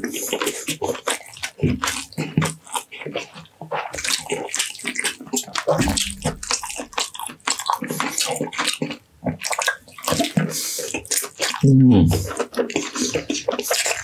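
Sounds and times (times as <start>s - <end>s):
wet chewing and lip-smacking: 0.0s - 14.0s.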